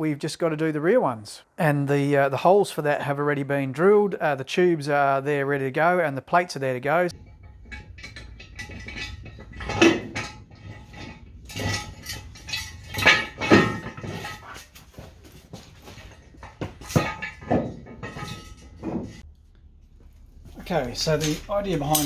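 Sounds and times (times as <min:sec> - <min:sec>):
steel tubes clanking together: 0:07.1 - 0:19.2, 0:21.0 - 0:22.0.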